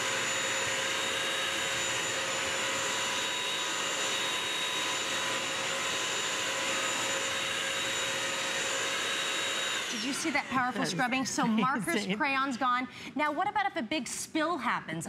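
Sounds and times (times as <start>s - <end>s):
wet dry vacuum motor whine: 0.0s - 11.9s.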